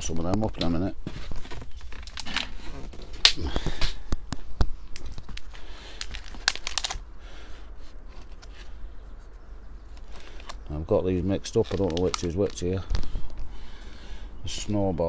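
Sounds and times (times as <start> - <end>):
plastic plant pots clicking: 0.0 - 7.0, 9.8 - 13.3
plastic trays rustling: 0.0 - 8.8, 9.8 - 13.4.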